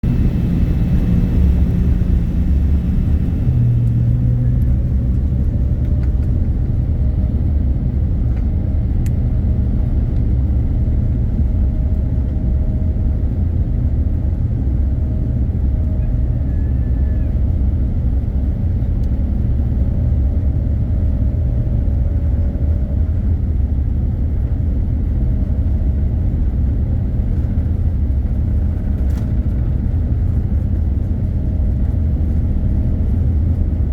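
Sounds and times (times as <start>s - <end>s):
faint engine tone: 0.0s - 24.8s
jet engines and wheels rumbling: 0.0s - 33.9s.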